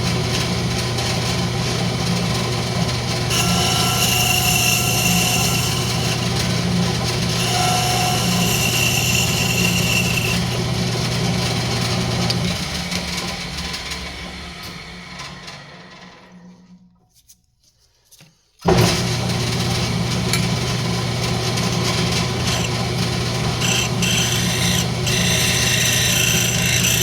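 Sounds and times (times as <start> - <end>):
lathe motor humming: 0.1 - 16.1, 19.3 - 27.0
tool cutting wood with ringing whine: 0.5 - 13.5, 21.6 - 27.0.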